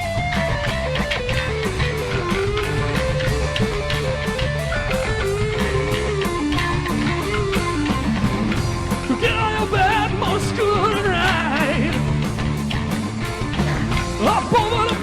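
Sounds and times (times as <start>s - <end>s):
bass guitar: 0.0s - 15.0s
lead electric guitar melody: 0.0s - 15.0s
steady drum beat: 0.0s - 15.0s.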